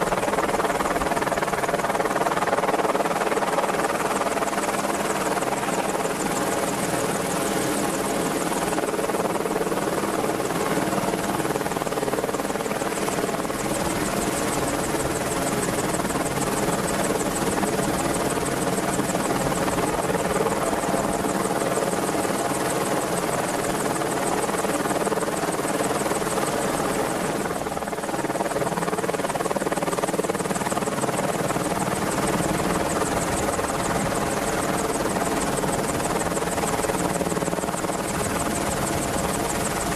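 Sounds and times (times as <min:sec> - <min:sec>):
helicopter engine tones: 0:00.0 - 0:39.9
helicopter rotor beat: 0:00.0 - 0:39.9.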